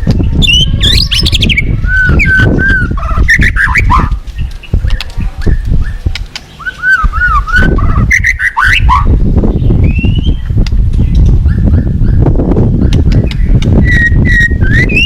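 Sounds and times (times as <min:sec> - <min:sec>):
bird singing whistled phrases: 0:00.4 - 0:04.1, 0:06.6 - 0:09.1, 0:09.7 - 0:10.5, 0:13.2 - 0:15.0.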